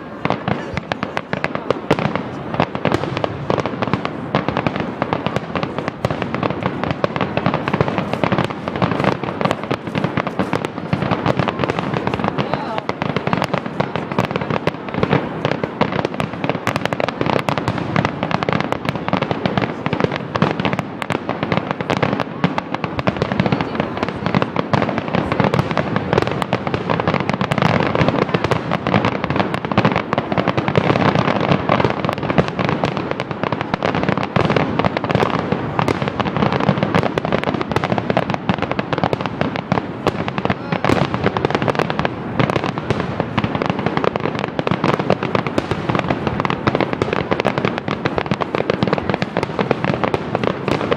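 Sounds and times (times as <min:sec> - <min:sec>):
fireworks bangs and crackles: 0:00.0 - 0:50.9.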